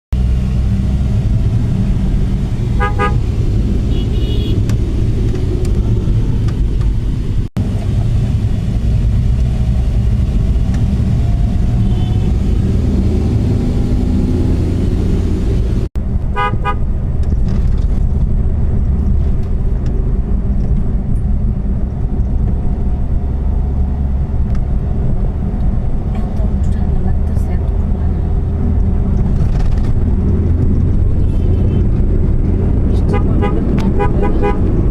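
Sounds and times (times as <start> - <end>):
traffic rumble: 0.1 - 34.9
vehicle horns tooting: 2.7 - 3.3, 3.9 - 4.6, 11.8 - 12.4, 16.4 - 16.8, 33.1 - 34.8.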